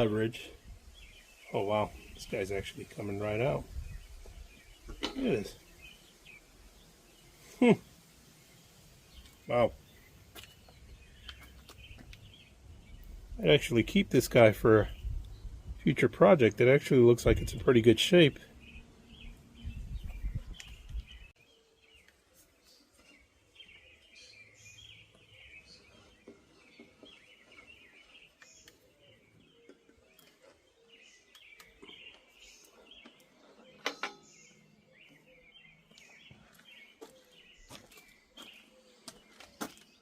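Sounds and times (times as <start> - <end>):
birds chirping: 0.0 - 40.0.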